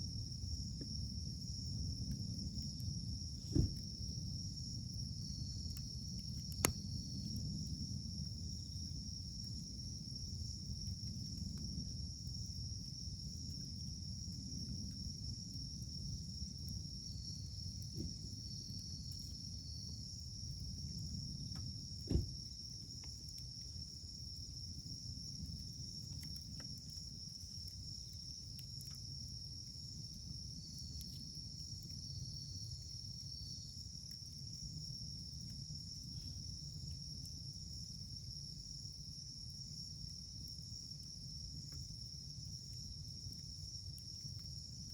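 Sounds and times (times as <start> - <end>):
high insect trill: 0.0 - 44.9
campfire burning and crackling: 0.1 - 44.9
loud sharp pop: 3.5 - 3.8, 22.1 - 22.3.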